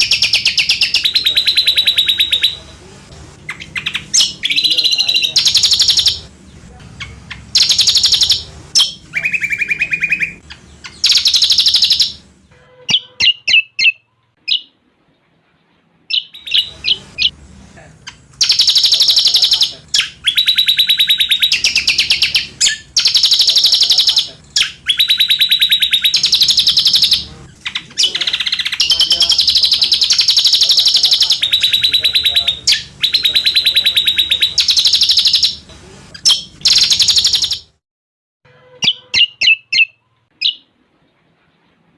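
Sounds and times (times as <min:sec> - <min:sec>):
songbird trilling: 0:00.0 - 0:02.7, 0:03.5 - 0:06.3, 0:07.0 - 0:14.8, 0:16.1 - 0:17.4, 0:18.0 - 0:37.7, 0:38.7 - 0:40.7.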